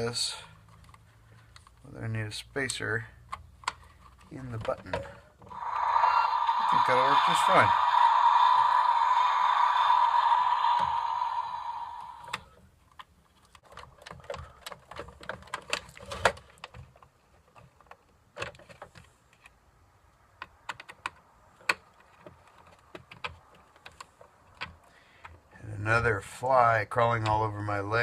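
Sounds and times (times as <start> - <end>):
hiss-like noise: 5.5 - 12.4
plastic toy parts clicking: 12.2 - 19.5, 20.4 - 25.4.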